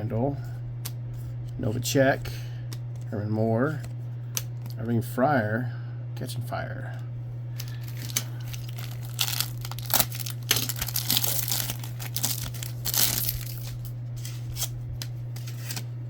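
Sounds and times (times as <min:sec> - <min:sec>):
steady low hum: 0:00.0 - 0:16.0
wrapper tearing and crinkling: 0:07.6 - 0:14.7.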